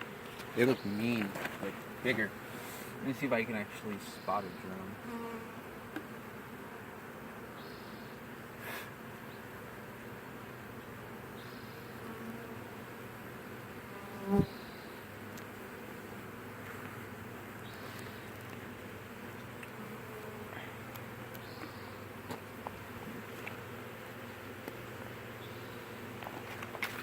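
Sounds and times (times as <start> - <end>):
bee swarm buzzing: 0.0 - 27.0
faint ticks: 15.3 - 15.6, 19.4 - 19.8, 20.8 - 22.8.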